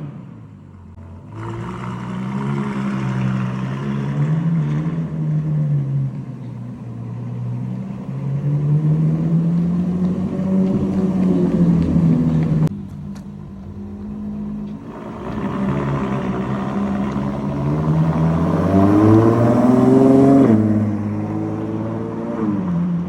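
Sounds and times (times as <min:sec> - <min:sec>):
car engine revving: 0:00.0 - 0:23.0
exhaust cracks: 0:09.6 - 0:20.6.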